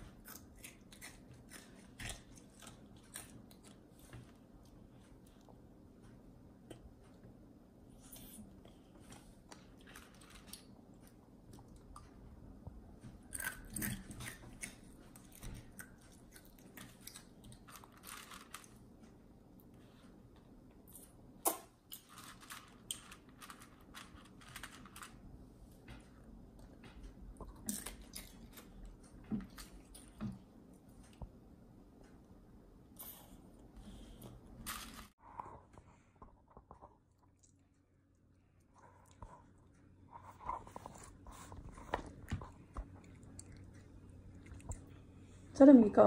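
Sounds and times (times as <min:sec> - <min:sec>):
child crunching dry cereal: 0:16.4 - 0:18.8, 0:21.9 - 0:25.2.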